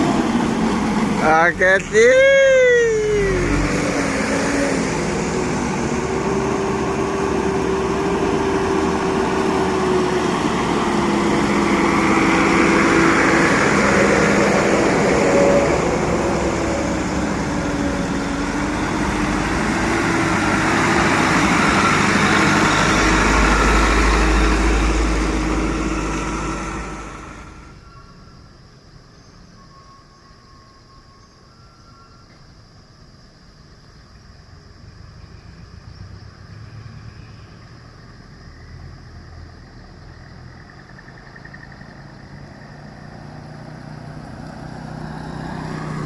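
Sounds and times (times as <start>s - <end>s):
truck engines running: 0.0s - 27.8s, 38.2s - 46.0s.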